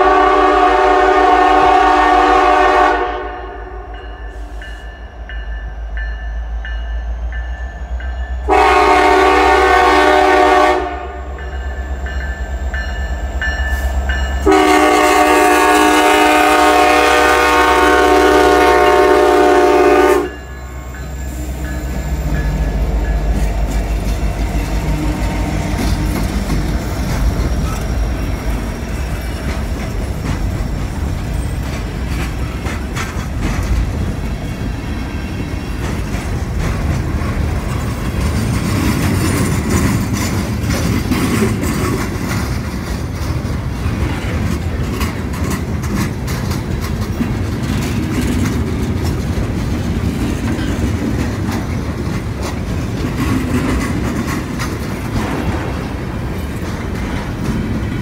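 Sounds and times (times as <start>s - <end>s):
freight train rumbling past: 0.0s - 58.0s
wheels clacking over rail joints: 20.3s - 58.0s.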